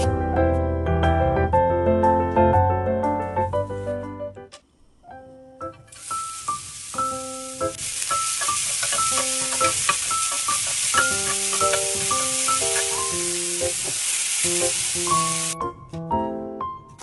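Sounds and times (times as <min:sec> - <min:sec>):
vegetables sizzling in hot oil: 0:05.9 - 0:15.6.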